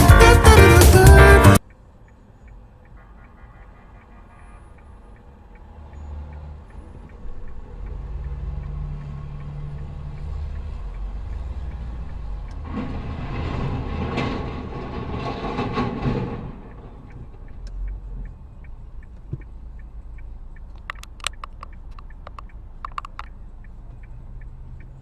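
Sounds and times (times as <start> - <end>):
rushing noise with short knocks: 12.6 - 17.0
vehicle engine running: 16.2 - 25.0.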